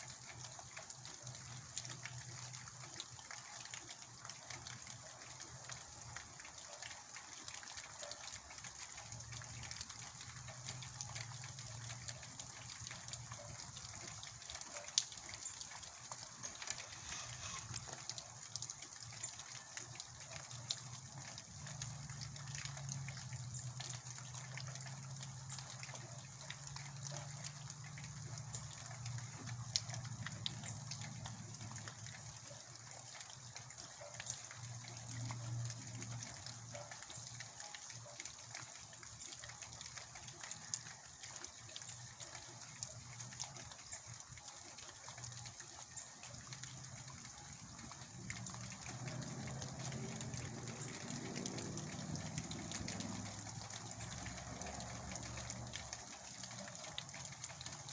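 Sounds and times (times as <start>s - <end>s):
water gushing and trickling: 0.0s - 57.9s
heavy rain falling: 5.4s - 32.8s, 45.3s - 57.9s.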